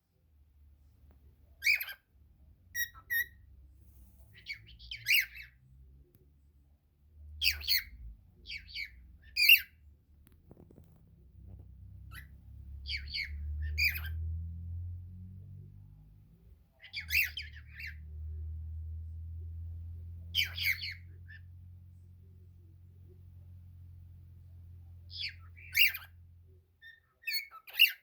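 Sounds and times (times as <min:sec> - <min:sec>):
cockatiel chirps and squawks: 0:01.6 - 0:02.1, 0:02.7 - 0:05.6, 0:07.4 - 0:09.8, 0:11.5 - 0:14.2, 0:16.8 - 0:18.3, 0:20.3 - 0:21.6, 0:25.1 - 0:26.2, 0:26.8 - 0:28.0.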